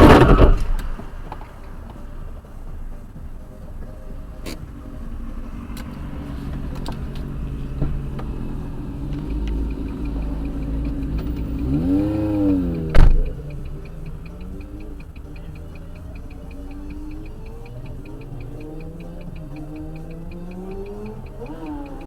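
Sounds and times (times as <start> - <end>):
loud bang: 0.0 - 2.0
car road and engine rumble: 0.0 - 22.0
faint regular ticking: 0.0 - 22.0
rising and falling tone: 0.0 - 22.0.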